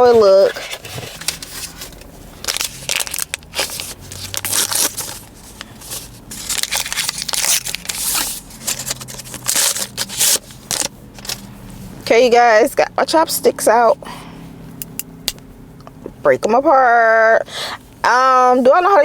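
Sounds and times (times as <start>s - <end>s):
packaging crinkling: 0.0s - 11.4s.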